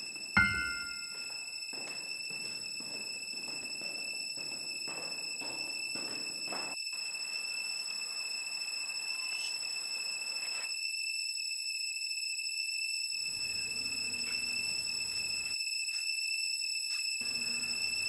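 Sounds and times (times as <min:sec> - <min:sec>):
high-pitched ringing tone: 0:00.4 - 0:01.4.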